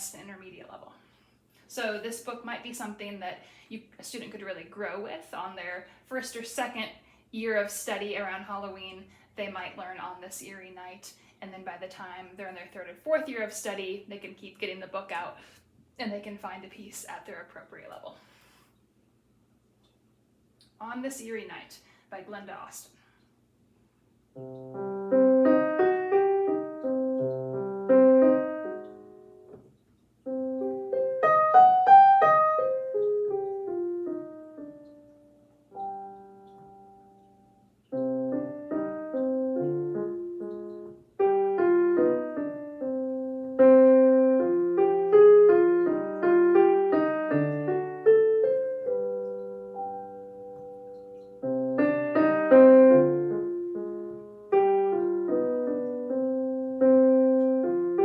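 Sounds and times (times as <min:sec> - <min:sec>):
solo piano piece: 0:24.4 - 0:58.0.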